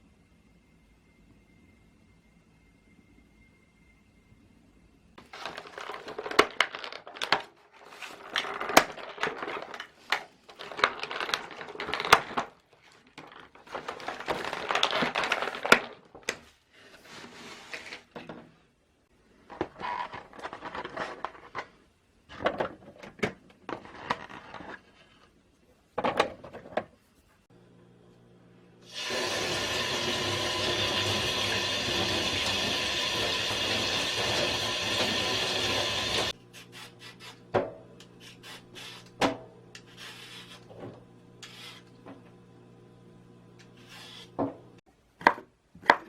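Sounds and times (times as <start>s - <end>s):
food crunching and crinkling: 5.2s - 16.2s.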